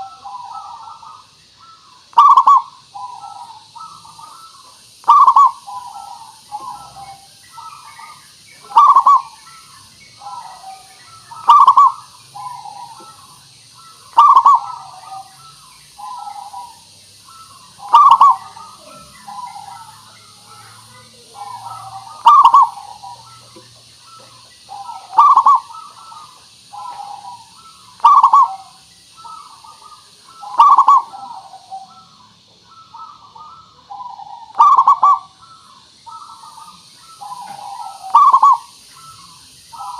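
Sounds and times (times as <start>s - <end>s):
dove cooing: 0.0s - 39.9s
faint high hiss: 0.0s - 39.9s.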